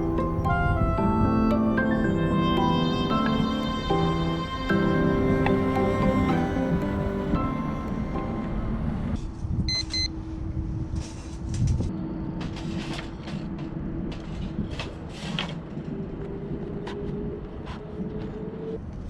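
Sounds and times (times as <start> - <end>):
wind rumble: 0.0 - 19.0
short beeps: 9.7 - 10.1.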